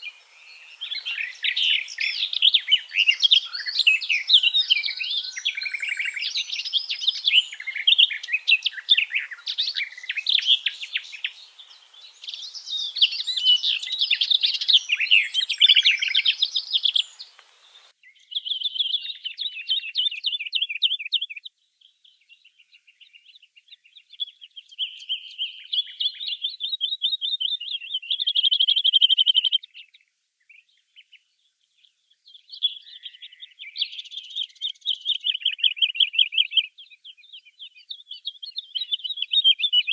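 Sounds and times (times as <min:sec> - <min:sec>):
bird trills: 0:00.0 - 0:17.9
songbirds chattering: 0:00.0 - 0:39.9.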